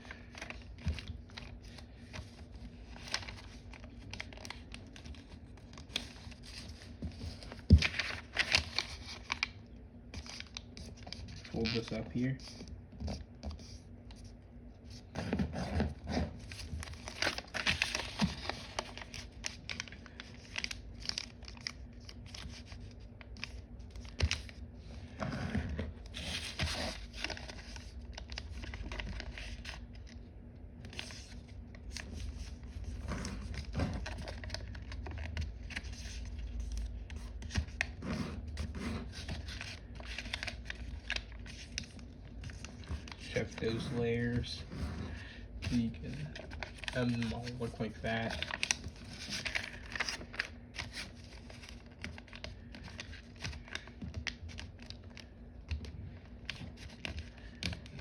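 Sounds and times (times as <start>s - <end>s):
paper crinkling and rustling: 0.0s - 30.2s, 30.8s - 58.0s.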